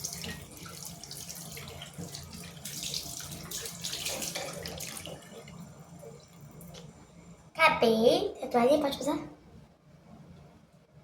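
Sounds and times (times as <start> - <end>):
tap water running into sink: 0.0 - 5.6
water splashing face rinse: 0.0 - 7.0.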